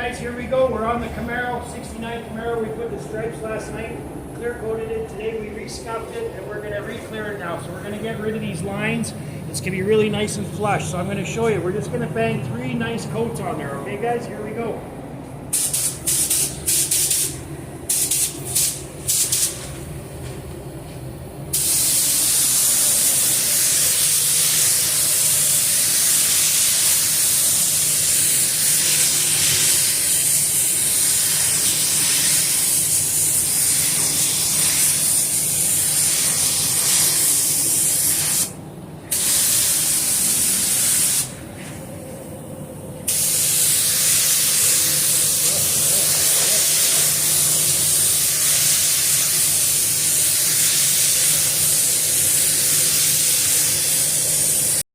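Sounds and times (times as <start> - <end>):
paint spray gun hissing: 15.5 - 19.7, 21.5 - 41.4, 43.1 - 54.8.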